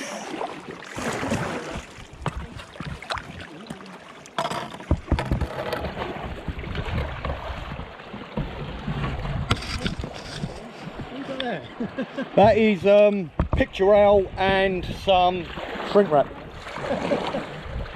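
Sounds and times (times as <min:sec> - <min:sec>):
water splashing around canoe: 0:00.0 - 0:17.9
sharp knocks: 0:13.3 - 0:13.7.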